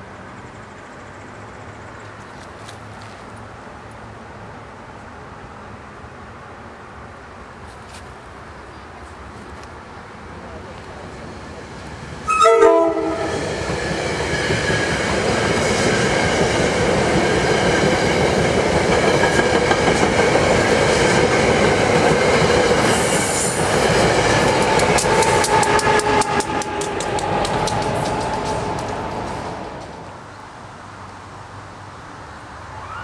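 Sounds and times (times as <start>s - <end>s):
train wheels rushing on rail: 9.0s - 32.6s
train air horn blast: 12.3s - 13.5s, 25.0s - 28.4s
wheels clicking over rail joints: 13.6s - 30.3s.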